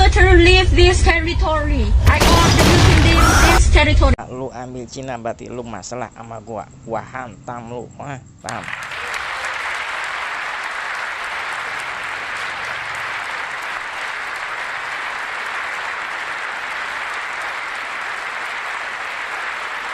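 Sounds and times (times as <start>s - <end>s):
crowd applause: 2.7s - 3.6s, 8.5s - 19.9s.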